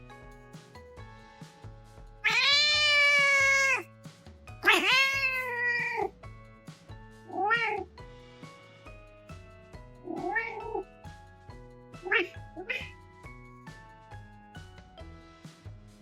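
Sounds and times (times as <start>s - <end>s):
background music: 0.0s - 16.0s
cat meowing loudly: 2.2s - 3.9s, 4.6s - 6.1s, 7.3s - 7.9s, 10.1s - 10.8s, 12.0s - 12.9s.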